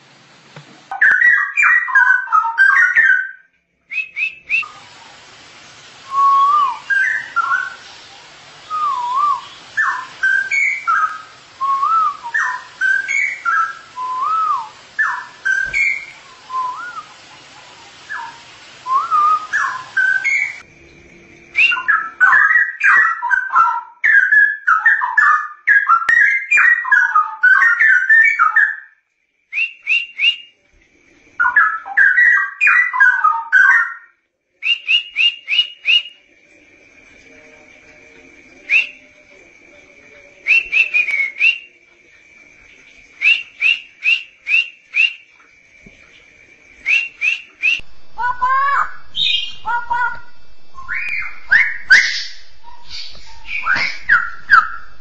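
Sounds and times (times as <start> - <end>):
bird singing warbled whistles: 0.9 - 4.7, 6.0 - 8.0, 8.6 - 17.2, 18.1 - 20.7, 21.5 - 30.6, 31.4 - 36.3, 38.5 - 39.2, 40.4 - 41.8, 43.2 - 45.3, 46.7 - 55.0
faint steady high tone: 36.1 - 43.1, 45.8 - 55.0.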